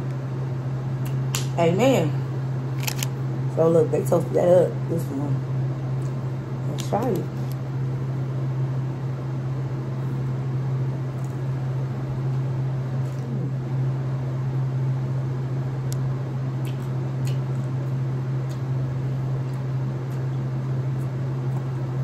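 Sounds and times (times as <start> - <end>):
steady low hum: 0.0 - 22.0
person chewing bread: 11.1 - 11.5, 13.0 - 13.6, 16.6 - 17.8, 18.4 - 21.9
faint mouth clicks: 16.6 - 17.7.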